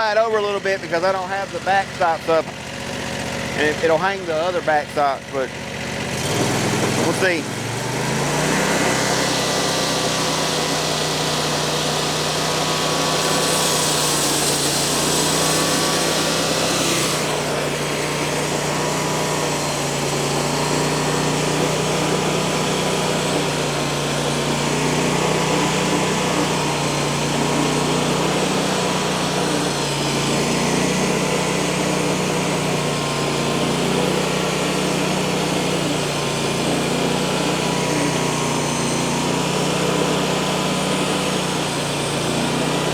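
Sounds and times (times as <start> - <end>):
band saw cutting log: 0.0 - 42.9
small gasoline engine under load: 0.0 - 42.9.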